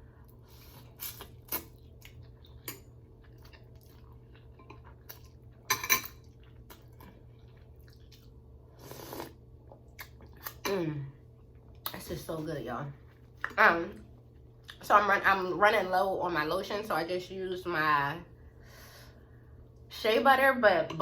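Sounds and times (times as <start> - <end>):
chewing and mouth smacks: 0.3 - 8.4, 9.0 - 10.6
noodle slurping: 8.8 - 9.4.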